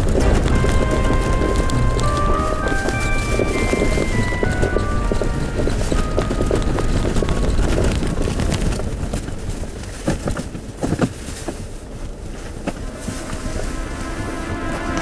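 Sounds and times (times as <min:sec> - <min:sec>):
wind on microphone: 0:00.0 - 0:10.8
vehicle rumbling on rough road: 0:00.0 - 0:15.0.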